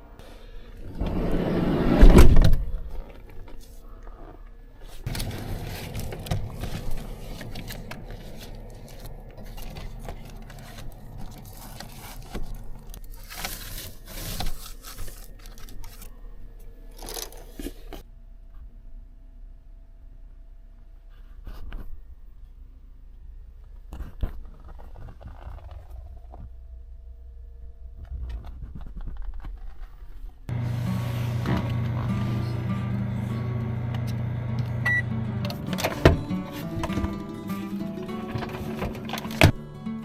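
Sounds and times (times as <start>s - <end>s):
objects scraping and rustling: 0.8s - 16.1s, 28.4s - 34.8s, 35.4s - 39.6s.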